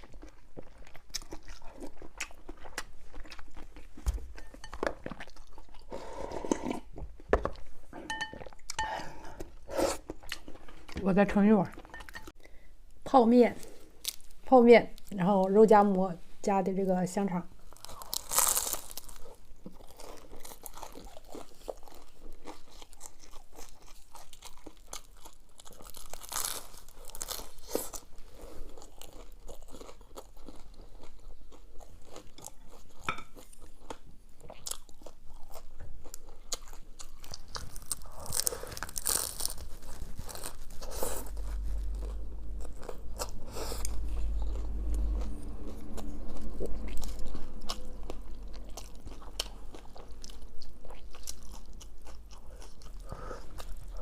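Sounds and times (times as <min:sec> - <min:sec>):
crunchy bites and chewing: 0:17.7 - 0:54.0
low rumble: 0:40.1 - 0:51.2.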